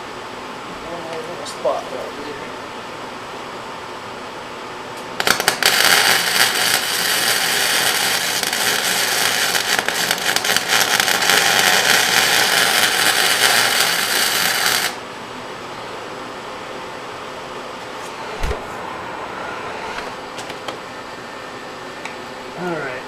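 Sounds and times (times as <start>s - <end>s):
shop fan running: 0.0s - 23.0s
welder arc crackling: 5.0s - 15.0s.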